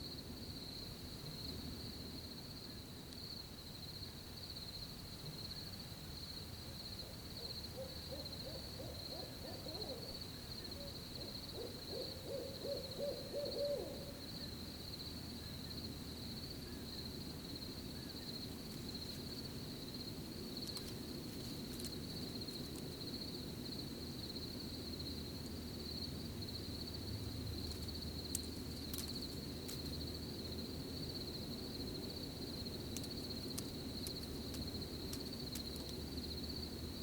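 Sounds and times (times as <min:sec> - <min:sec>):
high cricket chirping: 0:00.0 - 0:37.0
owl hooting: 0:07.0 - 0:14.5.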